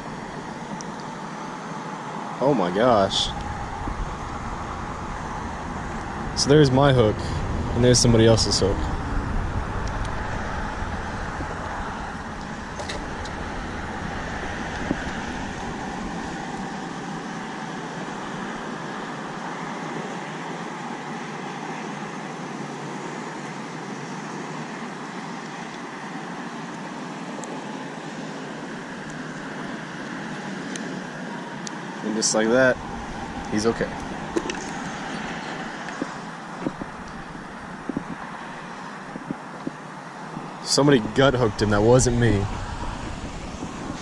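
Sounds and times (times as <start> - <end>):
steady rushing noise: 0.0 - 44.0.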